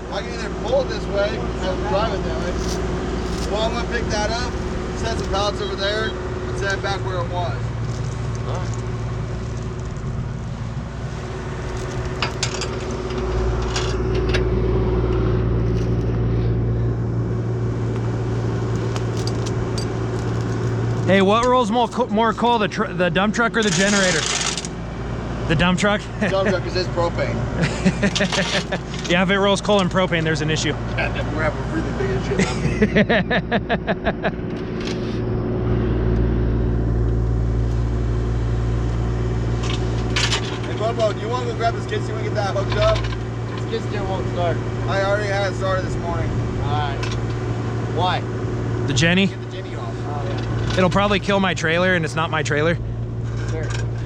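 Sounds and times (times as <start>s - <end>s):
engine running: 0.0s - 54.0s
metallic clicks and clanks: 18.8s - 21.1s.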